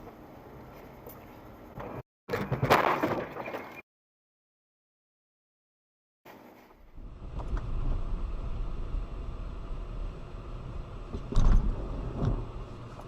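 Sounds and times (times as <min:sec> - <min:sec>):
car road rumble: 0:06.9 - 0:13.0.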